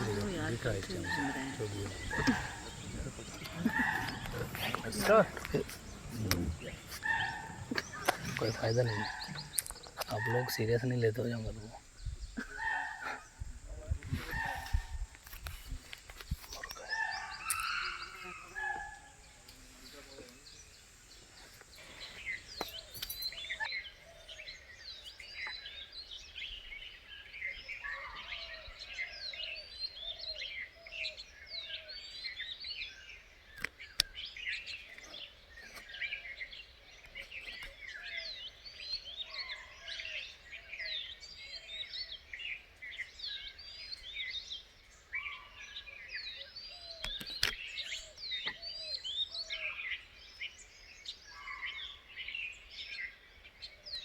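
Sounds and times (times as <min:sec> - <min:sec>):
lower bird call: 0:00.0 - 0:15.8, 0:16.4 - 0:25.7
birds chirping in chorus: 0:00.0 - 0:54.0.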